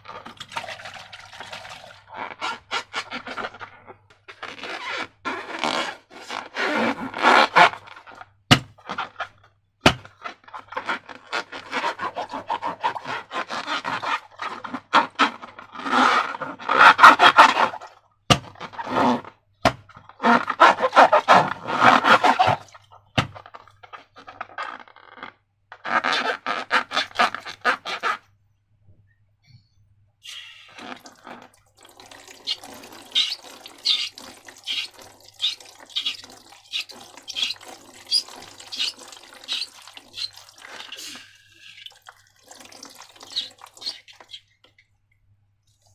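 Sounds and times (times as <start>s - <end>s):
sticky crackling slime scraping: 9.8s - 28.2s, 32.4s - 41.9s, 43.3s - 44.3s.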